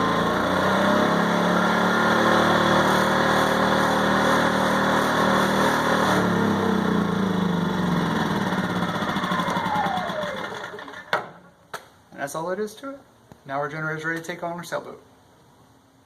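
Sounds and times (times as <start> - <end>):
generator engine running: 0.0 - 11.4.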